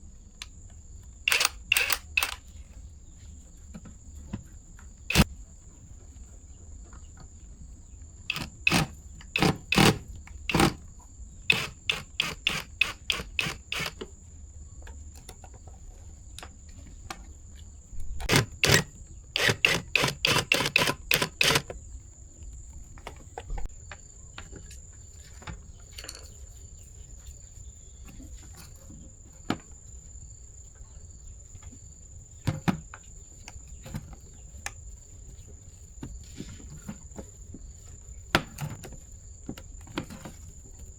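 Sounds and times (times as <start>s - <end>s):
high insect chirring: 1.3s - 2.4s, 11.4s - 14.0s, 18.3s - 21.7s
sharp clicks and knocks of hand work: 8.3s - 10.8s, 11.5s - 14.1s, 18.0s - 21.8s.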